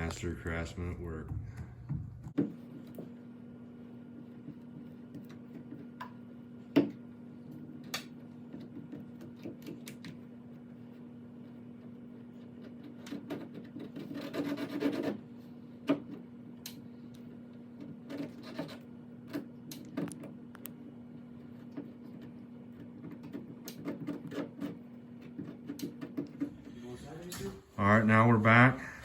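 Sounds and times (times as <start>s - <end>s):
steady low hum: 0.0s - 12.9s, 26.2s - 29.0s.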